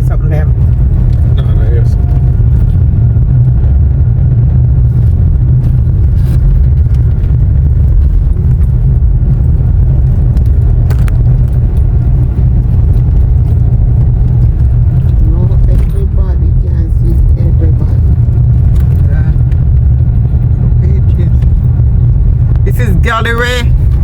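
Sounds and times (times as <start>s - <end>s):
car road and engine noise: 0.0s - 24.0s
faint clicks and rattles: 5.0s - 16.2s.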